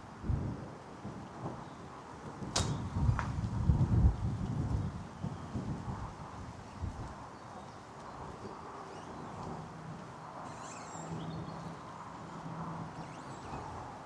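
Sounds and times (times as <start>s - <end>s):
faint footsteps on a path: 4.2s - 10.6s
songbirds chirping: 6.6s - 14.0s.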